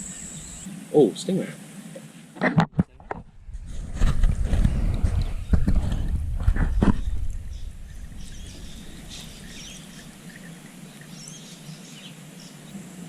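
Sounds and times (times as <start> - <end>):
bird chirps: 0.0 - 0.7, 6.6 - 12.8
low rumble: 3.0 - 10.8.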